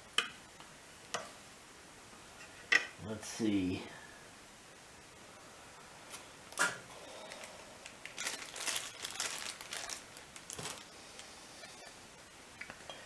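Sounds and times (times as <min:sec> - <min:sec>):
crinkly rustling: 0:07.2 - 0:11.3.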